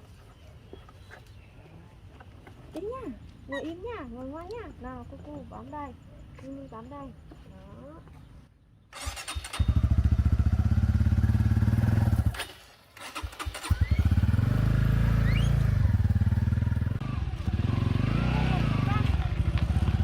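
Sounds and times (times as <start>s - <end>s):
motorbike engine running: 9.0s - 20.0s.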